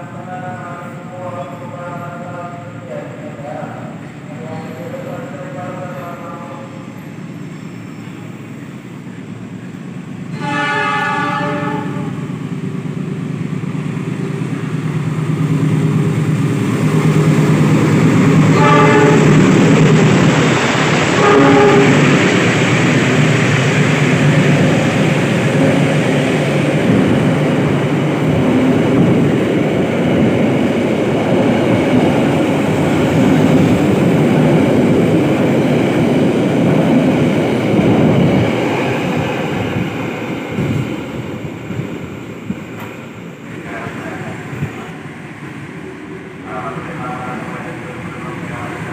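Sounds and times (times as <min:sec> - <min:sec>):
train rumbling past: 0:00.0 - 0:48.9
train horn: 0:10.3 - 0:12.2, 0:18.5 - 0:19.4, 0:21.2 - 0:22.1.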